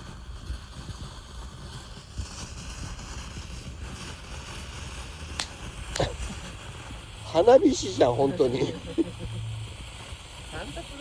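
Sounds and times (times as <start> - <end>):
wind rumbling on microphone: 0.0 - 8.1
steady hiss: 0.0 - 11.0
sharp crack: 2.2 - 11.0.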